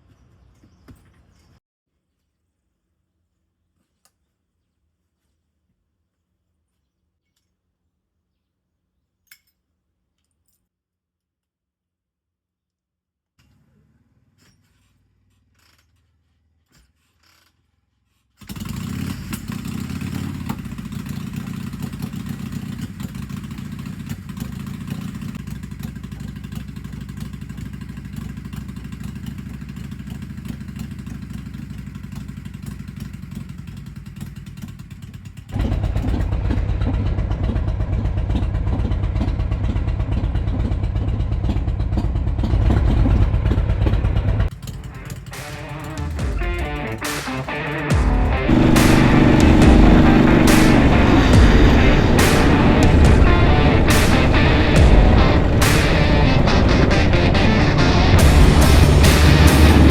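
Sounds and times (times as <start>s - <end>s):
motorcycle engine running: 18.4s - 59.9s.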